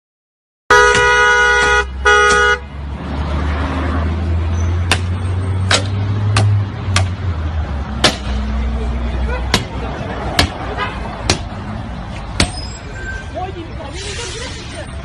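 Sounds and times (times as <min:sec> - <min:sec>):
car horn honking: 0:00.7 - 0:02.7, 0:10.6 - 0:11.2
golf club striking car body: 0:04.8 - 0:07.2, 0:08.0 - 0:08.4, 0:09.5 - 0:11.5.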